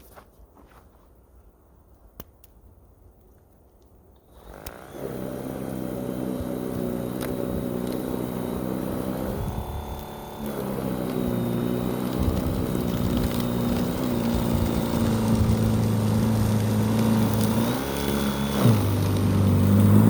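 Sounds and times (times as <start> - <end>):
snow blower motor whining: 4.3 - 20.0.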